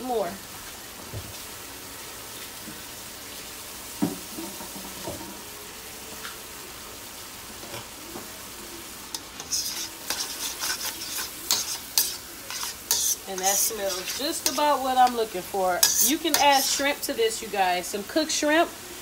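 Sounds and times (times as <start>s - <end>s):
chicken sizzling in a wok: 0.0s - 19.0s
spoon scraping and stirring: 9.2s - 15.2s, 15.8s - 17.0s.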